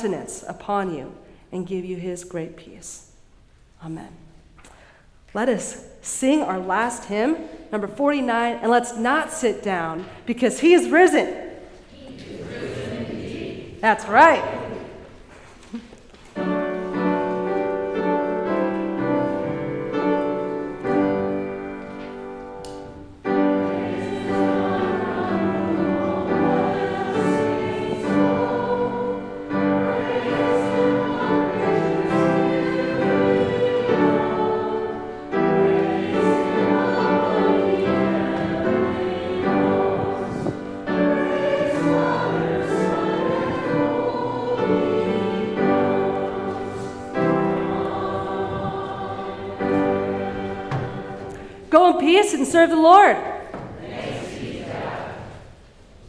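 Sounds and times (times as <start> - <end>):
congregation singing a hymn: 8.3 - 15.5, 16.4 - 55.8
instrumental accompaniment: 16.1 - 54.9.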